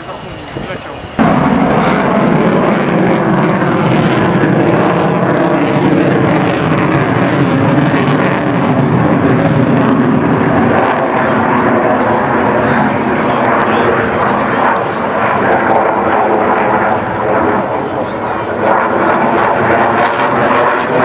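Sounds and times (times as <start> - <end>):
aircraft flying past: 0.0 - 21.0.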